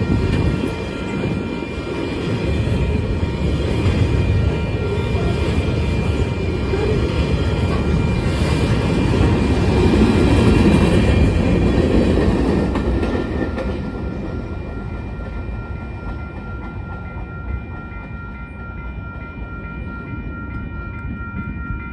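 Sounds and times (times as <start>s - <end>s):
clickety-clack over rail joints: 0.0s - 1.4s, 3.4s - 19.7s
crossing signal bell ringing: 0.0s - 21.9s
freight train wheels rumbling: 0.0s - 21.9s.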